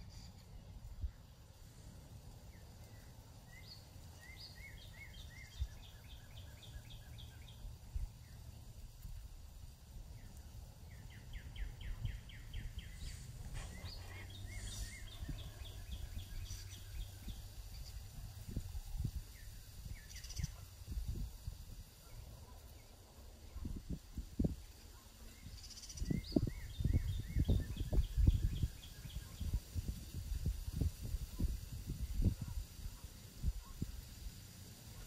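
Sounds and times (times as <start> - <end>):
songbird singing high notes: 10.9 - 18.0.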